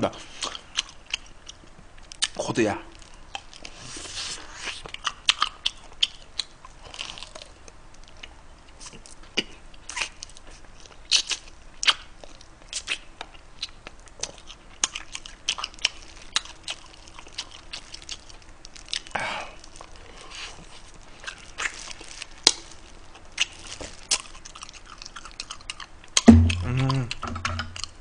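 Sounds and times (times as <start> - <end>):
close chewing and biting: 0.3 - 28.0
sharp mouth clicks: 26.2 - 27.9.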